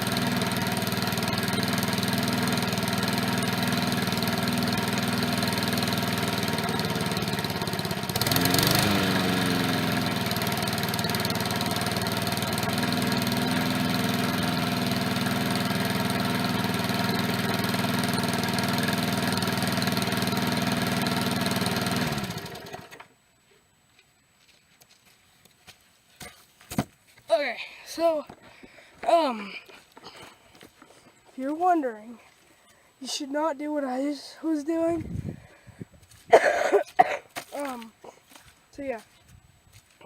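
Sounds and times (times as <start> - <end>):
lawn mower engine running: 0.0 - 23.2.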